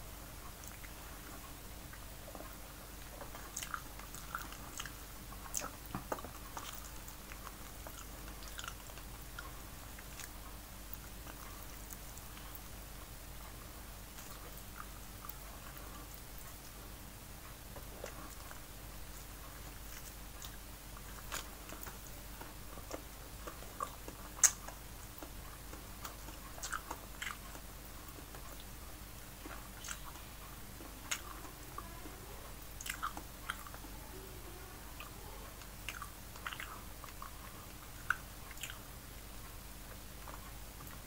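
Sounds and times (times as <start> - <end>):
chewing and mouth smacks: 0.4 - 12.7, 14.1 - 16.8, 17.7 - 31.9, 32.7 - 33.9, 35.0 - 39.3.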